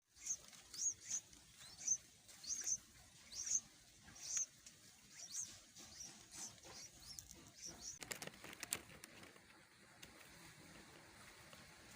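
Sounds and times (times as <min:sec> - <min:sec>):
chicks begging chirps: 0:00.1 - 0:08.1.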